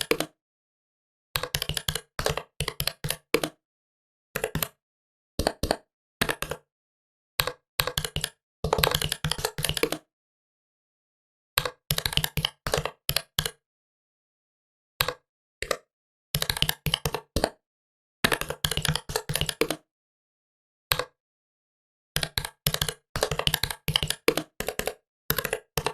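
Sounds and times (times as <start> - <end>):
keyboard typing clicks: 1.4 - 3.6, 7.4 - 10.0, 16.4 - 17.5, 18.3 - 19.8, 22.2 - 25.9.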